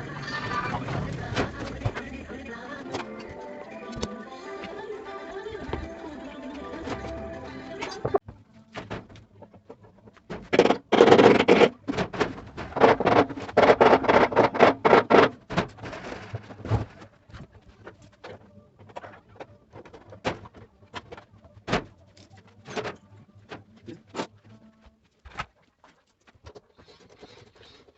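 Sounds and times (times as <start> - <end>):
hand tools and metal rattling: 6.6 - 24.6.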